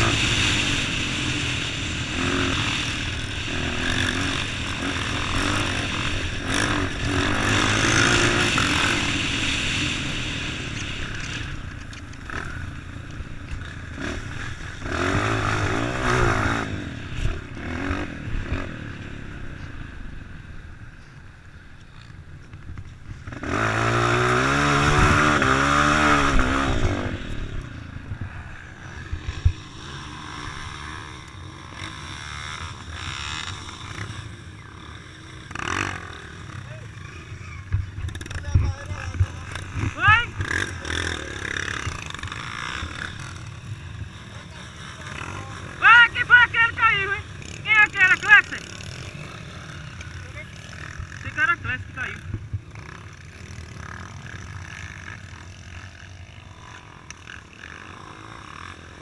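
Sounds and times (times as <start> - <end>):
vehicle engine revving: 0.0 - 11.6, 23.3 - 27.6.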